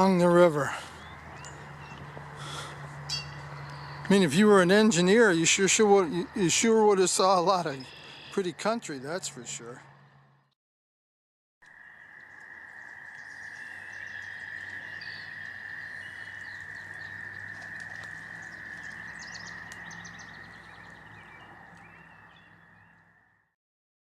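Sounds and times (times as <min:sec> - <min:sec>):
bird chirps: 0:00.0 - 0:04.7, 0:07.3 - 0:08.6, 0:12.3 - 0:23.2
frogs trilling: 0:00.0 - 0:10.0, 0:11.6 - 0:23.5.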